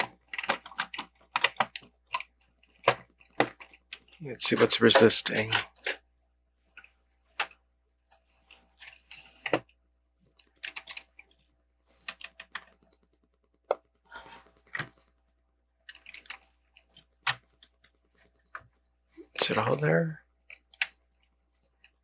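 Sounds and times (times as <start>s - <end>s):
plastic bricks clicking and rattling: 0.0s - 6.0s, 15.8s - 17.7s.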